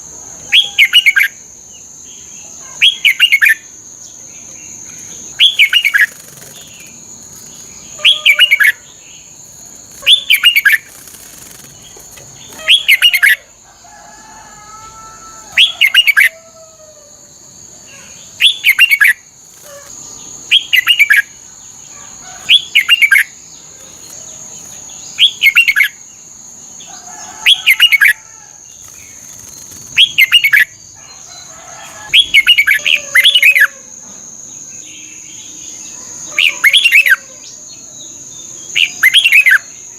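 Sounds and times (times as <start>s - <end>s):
steady high-pitched whine: 0.0s - 16.3s
bird singing warbling phrases: 2.2s - 3.7s, 4.4s - 13.6s, 15.5s - 16.4s, 17.9s - 26.1s, 27.4s - 28.2s, 28.8s - 30.8s, 32.1s - 33.9s, 34.8s - 37.4s, 38.4s - 39.8s.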